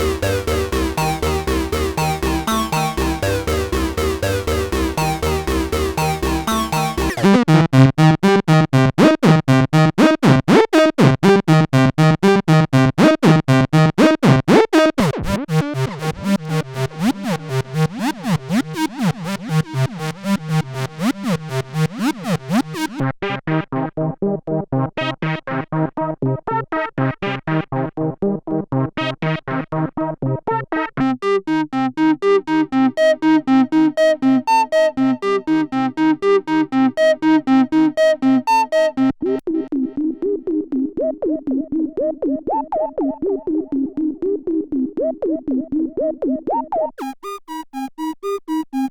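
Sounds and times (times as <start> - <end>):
synthesizer playing sequenced line: 0.0 - 23.0, 31.5 - 39.2, 47.0 - 48.9.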